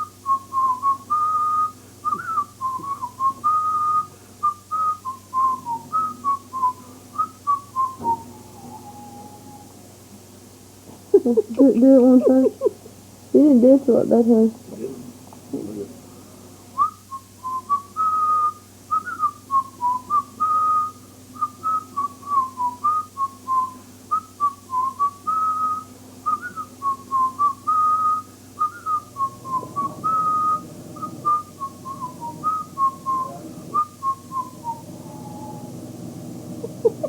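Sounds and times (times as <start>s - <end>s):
person whistling a tune: 0.0s - 9.7s, 16.8s - 35.7s.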